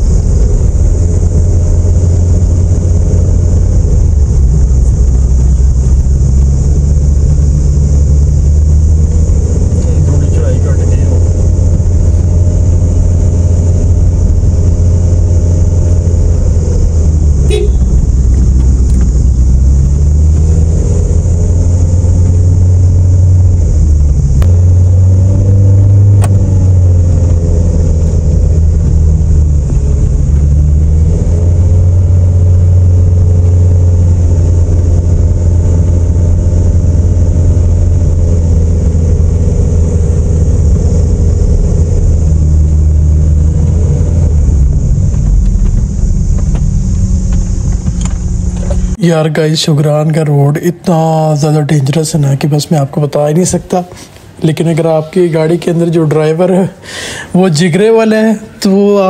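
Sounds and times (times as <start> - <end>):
car engine rising and falling: 0.0 - 59.0
road noise hiss: 0.0 - 59.0.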